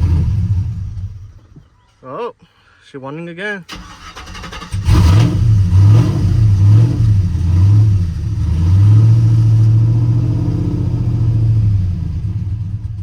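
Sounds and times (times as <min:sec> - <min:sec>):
truck engine idling without mufflers: 0:09.3 - 0:13.0.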